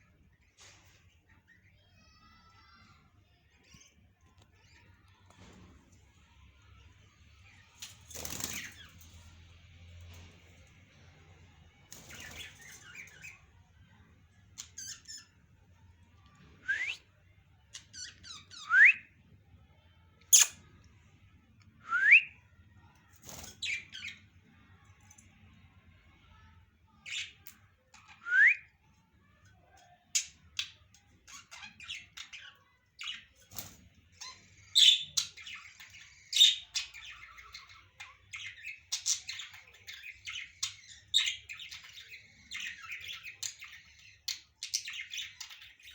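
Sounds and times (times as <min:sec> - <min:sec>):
parrots chattering: 0:14.6 - 0:15.4, 0:20.3 - 0:20.6.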